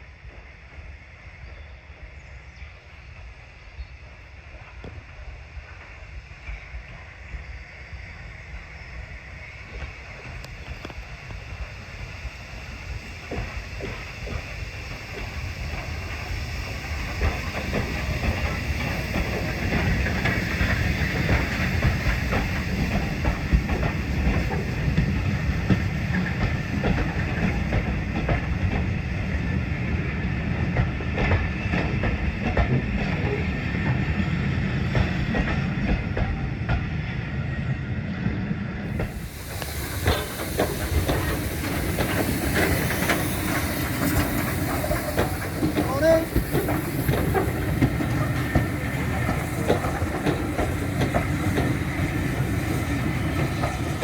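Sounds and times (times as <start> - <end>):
train low rumble: 0.0 - 54.0
steady hiss: 2.8 - 30.2, 38.9 - 54.0
train wheels clattering over joints: 9.7 - 37.0, 38.3 - 54.0.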